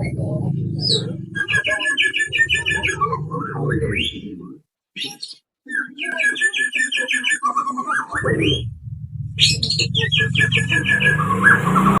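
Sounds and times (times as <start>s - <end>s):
bird chattering song: 0.0s - 8.8s, 9.4s - 12.0s
low steady hum: 8.2s - 10.9s.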